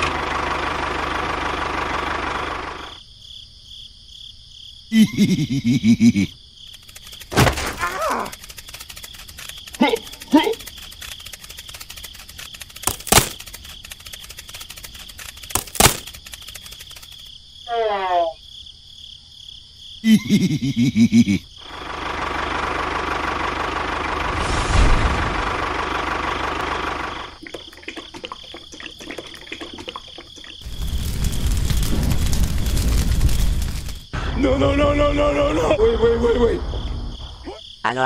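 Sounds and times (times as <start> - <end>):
high cartoon voice sliding down: 7.7 - 8.3
chattering cartoon voice: 7.7 - 8.4, 9.8 - 10.7
steady rushing noise: 24.2 - 26.0.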